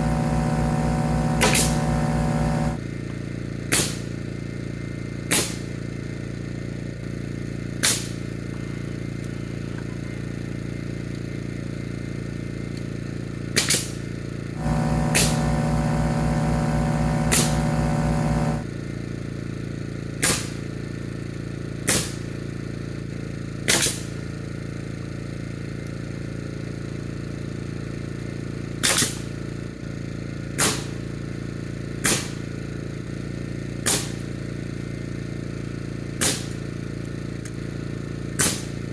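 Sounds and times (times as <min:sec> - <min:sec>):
motor buzzing drone: 0:00.0 - 0:02.8, 0:14.6 - 0:18.7
steady hum: 0:00.0 - 0:02.8, 0:14.6 - 0:18.7
nail gun shots: 0:01.4 - 0:01.8, 0:17.3 - 0:17.6, 0:23.7 - 0:24.0, 0:36.2 - 0:36.6, 0:38.4 - 0:38.7.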